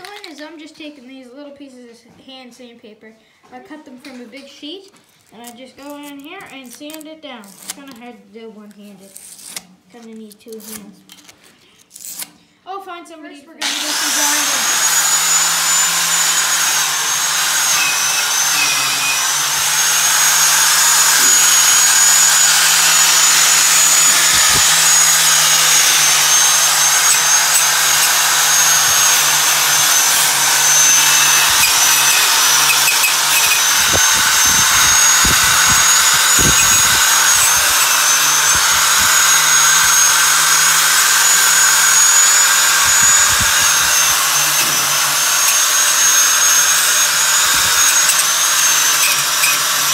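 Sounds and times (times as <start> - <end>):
electric grinder on steel: 13.6 - 49.9.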